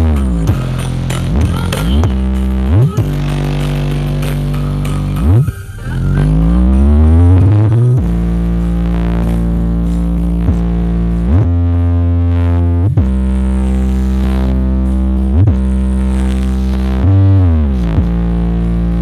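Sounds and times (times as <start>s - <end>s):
electronic music with synth bass: 0.0s - 19.0s.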